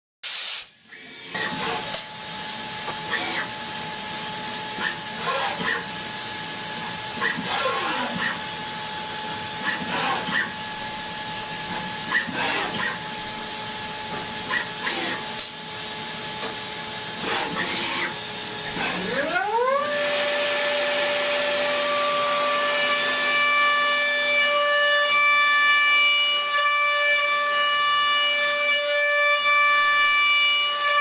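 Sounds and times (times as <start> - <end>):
cnc machine hiss and whine: 0.5 - 31.0.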